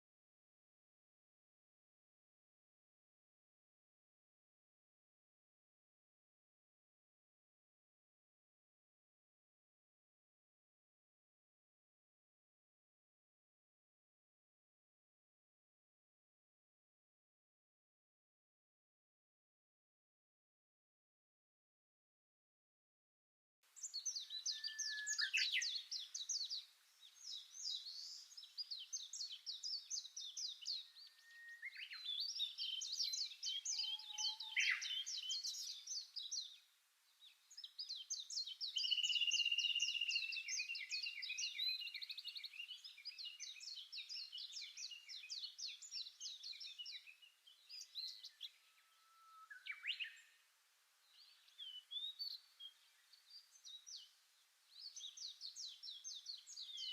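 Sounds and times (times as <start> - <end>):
songbirds singing: 23.7 - 56.9.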